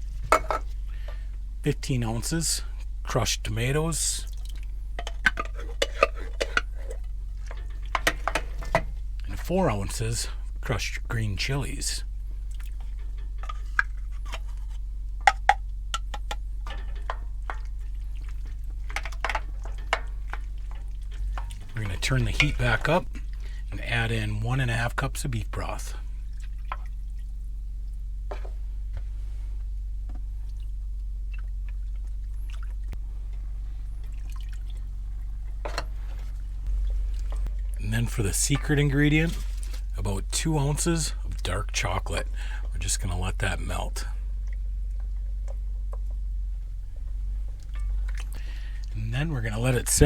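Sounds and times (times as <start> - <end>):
steady low hum: 0.0 - 50.0
liquid dripping and splashing: 4.2 - 9.3, 12.4 - 23.7, 26.2 - 28.1, 30.2 - 37.8.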